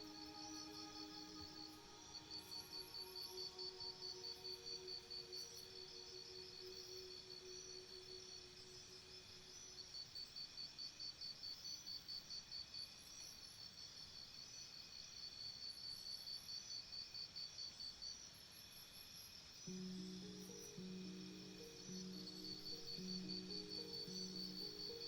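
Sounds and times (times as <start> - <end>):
high insect trill: 0.0 - 10.2, 19.7 - 25.0
crickets chirping: 0.0 - 25.0.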